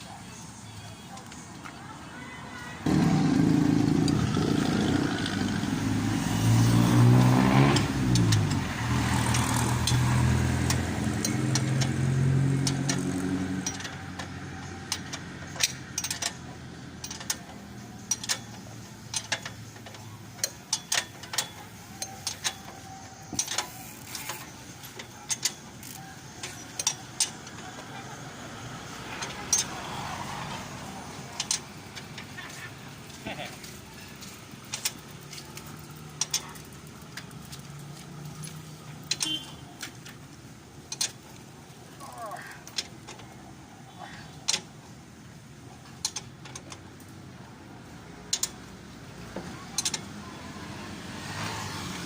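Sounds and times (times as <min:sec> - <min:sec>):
motorcycle engine running: 0:02.9 - 0:16.5
sharp metallic clicks: 0:02.9 - 0:29.9, 0:30.5 - 0:43.4, 0:45.8 - 0:47.2, 0:48.2 - 0:48.8, 0:49.6 - 0:50.2.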